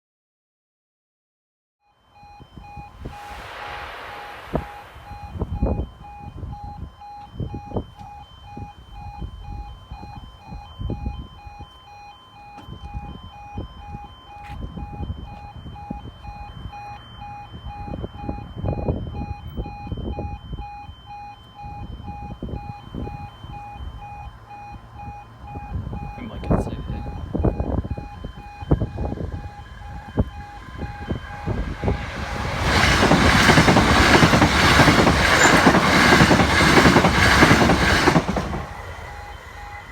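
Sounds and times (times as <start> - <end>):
pulsing warning alarm tone: 1.8 - 39.9
low rumbles: 2.8 - 6.5, 25.5 - 39.9.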